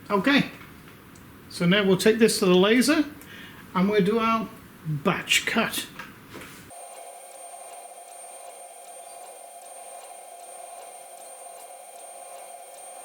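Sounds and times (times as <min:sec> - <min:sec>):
laser cutter machine hum: 0:06.7 - 0:13.0.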